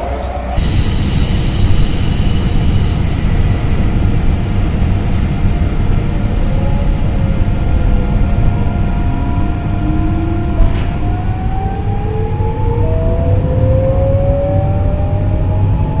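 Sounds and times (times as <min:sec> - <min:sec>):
train motor whine: 0:00.5 - 0:12.6.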